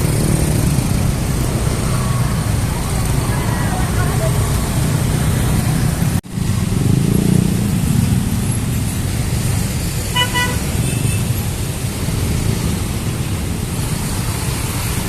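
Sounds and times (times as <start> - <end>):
road traffic rumble: 0.0 - 15.0
vehicle horn toots: 10.1 - 11.3.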